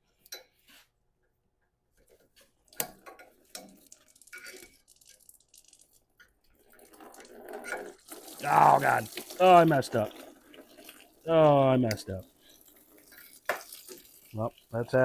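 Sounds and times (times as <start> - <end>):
coolant dripping: 8.0 - 15.0.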